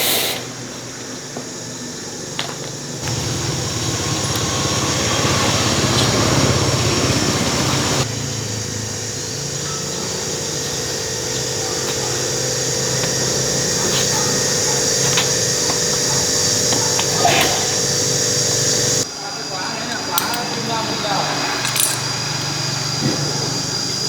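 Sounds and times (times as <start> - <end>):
hiss: 0.0 - 1.0, 3.0 - 19.1
machine humming: 2.9 - 24.0.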